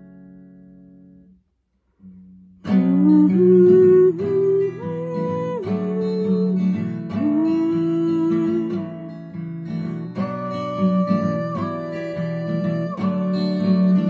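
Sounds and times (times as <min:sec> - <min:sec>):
acoustic guitar strumming: 0:00.0 - 0:01.4, 0:02.0 - 0:14.0
wordless singing: 0:10.2 - 0:14.0.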